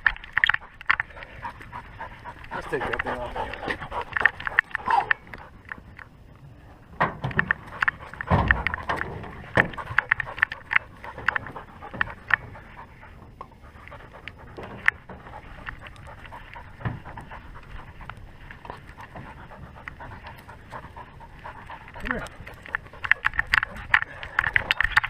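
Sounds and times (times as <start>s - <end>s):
dog panting: 0.4s - 6.1s, 6.7s - 25.0s
handling clicks and knocks: 7.0s - 25.0s.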